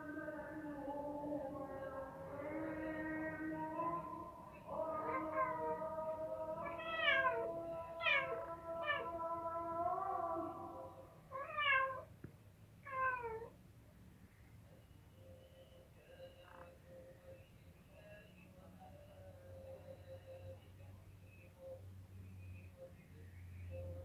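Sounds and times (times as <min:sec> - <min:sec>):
cat meowing: 0:04.7 - 0:10.4, 0:11.3 - 0:12.1, 0:12.8 - 0:13.5.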